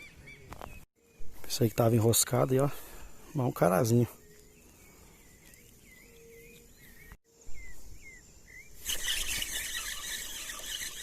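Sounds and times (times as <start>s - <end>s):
birds chirping: 0.0s - 11.0s
high-pitched insect buzz: 8.8s - 11.0s.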